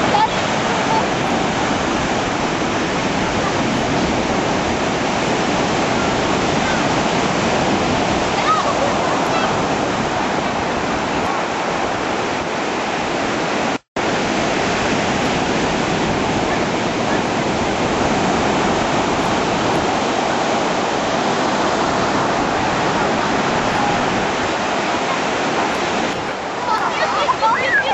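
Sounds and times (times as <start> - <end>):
breaking waves roaring: 0.0 - 27.9.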